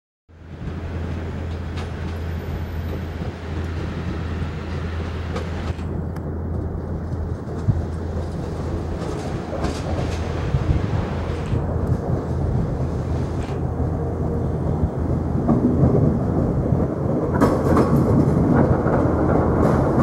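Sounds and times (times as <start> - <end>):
train wheels rumbling: 0.3 - 20.0.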